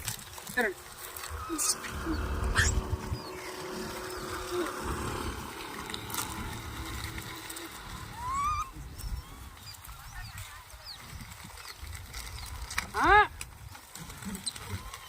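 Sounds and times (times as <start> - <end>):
low rumbling background: 0.0 - 9.7
monkeys squeaking: 1.0 - 5.3, 7.6 - 10.4.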